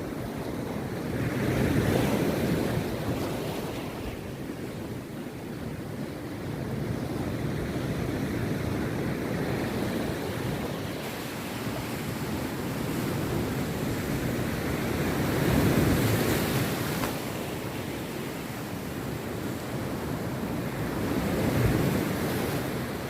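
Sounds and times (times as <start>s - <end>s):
sea surf breaking on beach: 0.0s - 23.0s.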